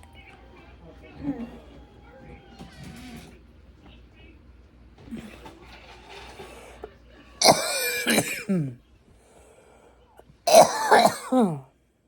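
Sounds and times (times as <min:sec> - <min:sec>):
person coughing hard: 0:07.4 - 0:08.8, 0:10.5 - 0:11.7.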